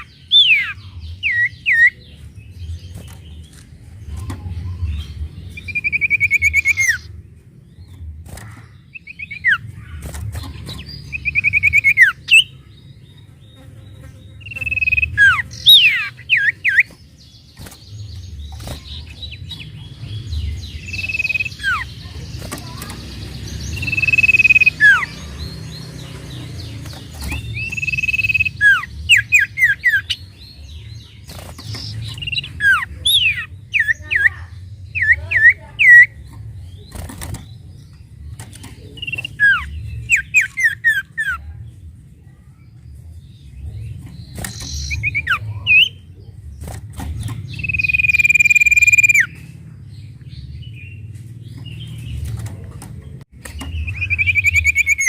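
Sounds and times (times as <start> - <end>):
songbird whistling and trilling: 0.0 - 2.1, 4.2 - 7.1, 11.0 - 12.6, 14.4 - 16.9, 20.6 - 21.9, 23.7 - 25.2, 27.2 - 30.4, 39.0 - 41.4, 44.3 - 46.0, 47.5 - 49.4, 53.6 - 55.0.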